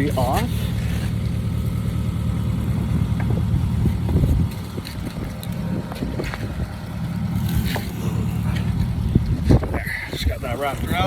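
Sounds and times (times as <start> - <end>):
vehicle rumble: 0.0 - 11.0
wind on microphone: 3.3 - 11.0.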